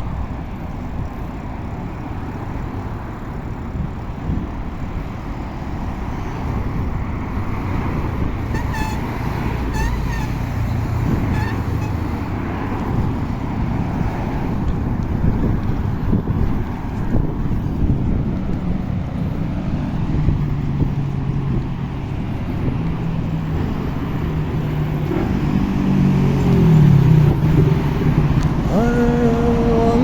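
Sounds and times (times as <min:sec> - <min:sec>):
road traffic noise: 0:00.0 - 0:30.0
wind rumble on microphone: 0:00.0 - 0:30.0
short horn honks: 0:08.5 - 0:10.4.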